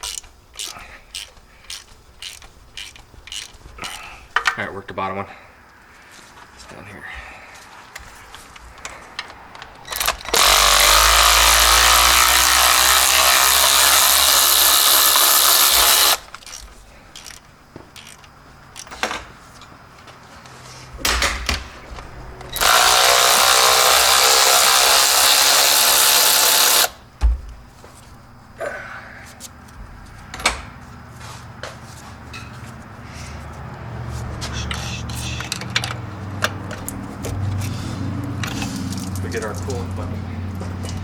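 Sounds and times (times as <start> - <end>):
socket and tools clicking: 0.0 - 4.6
power tool running: 9.9 - 16.3, 22.5 - 27.0.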